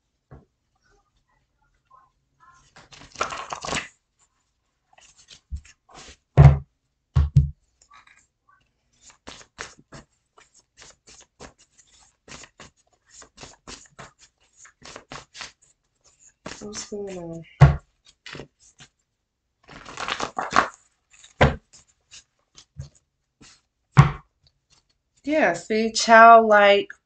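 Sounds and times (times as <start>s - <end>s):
cards shuffling: 4.9s - 6.2s, 9.0s - 17.4s, 18.0s - 19.0s, 19.7s - 24.9s
soft thumps: 7.2s - 7.6s, 24.0s - 24.2s.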